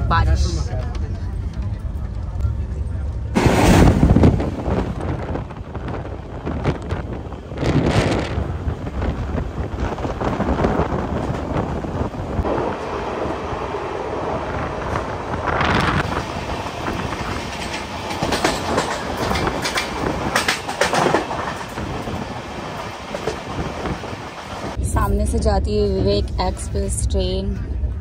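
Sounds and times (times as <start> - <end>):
train rumbling on rails: 0.0 - 28.0
wheels clicking over rail joints: 16.8 - 24.1.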